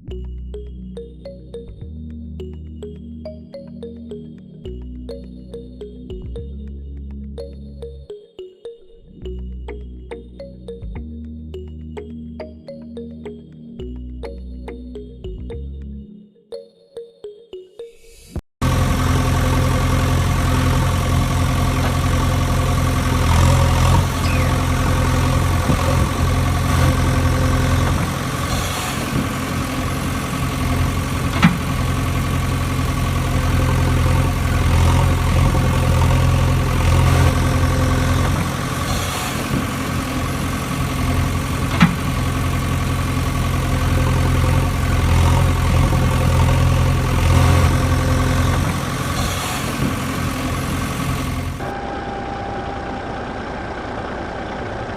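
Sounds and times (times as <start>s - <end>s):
engine idling: 18.6s - 54.9s.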